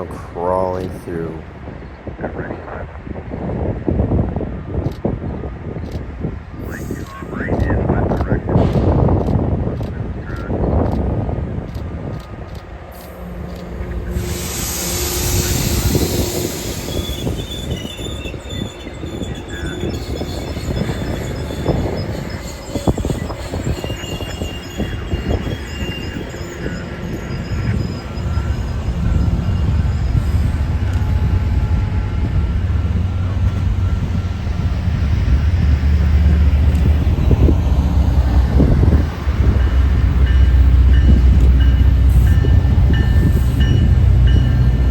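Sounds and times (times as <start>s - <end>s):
train wheels rumbling and clattering: 0.0s - 44.9s
high wheel squeals: 12.9s - 36.4s.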